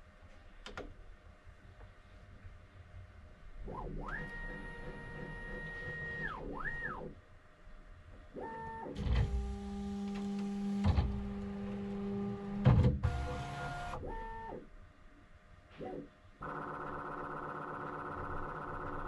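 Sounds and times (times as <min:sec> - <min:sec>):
printer stepper motors whining: 0:03.7 - 0:07.1, 0:08.4 - 0:14.6.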